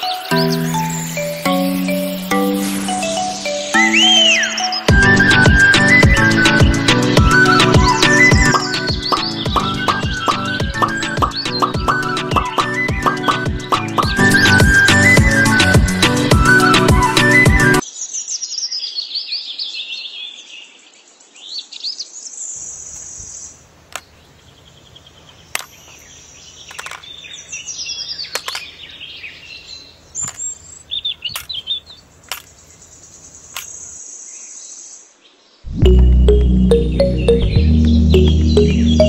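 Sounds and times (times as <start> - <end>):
songbirds chirping and singing: 0.0 - 39.0
sharp clicks: 31.3 - 32.6.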